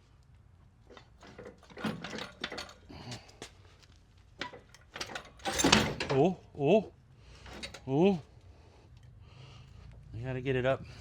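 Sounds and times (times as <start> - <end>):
metal knocks and clunks: 0.9 - 3.2, 4.4 - 6.3, 7.5 - 7.9.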